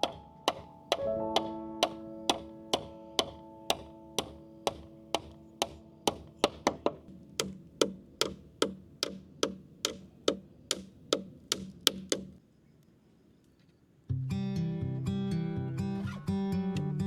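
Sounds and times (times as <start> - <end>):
tool knocking on wood: 0.0 - 12.4.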